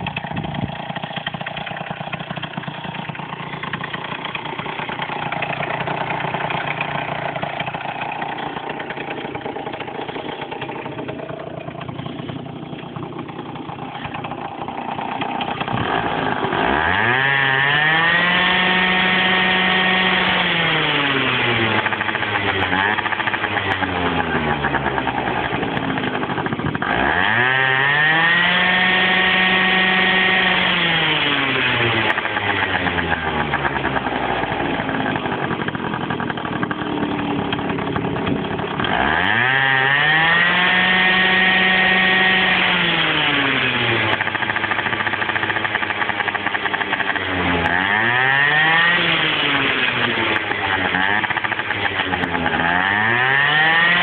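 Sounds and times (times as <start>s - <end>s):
scooter engine revving: 0.0s - 54.0s.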